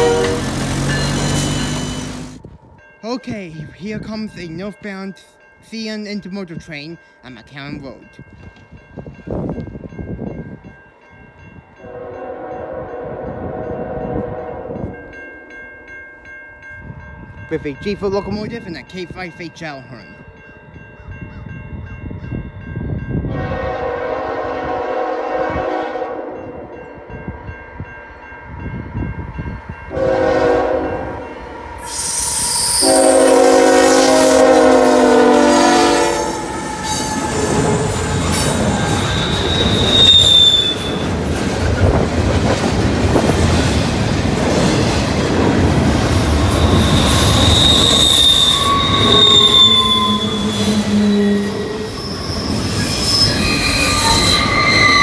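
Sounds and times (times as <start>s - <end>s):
train horn blasts: 0.0s - 2.3s, 11.8s - 15.0s, 23.2s - 26.7s, 29.9s - 37.9s, 46.9s - 51.9s
train rumbling past: 0.0s - 3.0s, 8.1s - 19.2s, 20.2s - 55.0s
wheel squeal: 38.4s - 41.0s, 46.5s - 55.0s.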